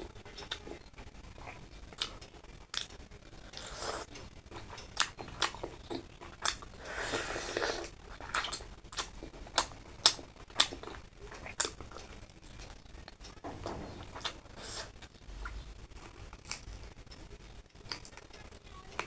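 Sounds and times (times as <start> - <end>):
person chewing with wet mouth clicks: 0.4 - 0.8, 1.4 - 13.2.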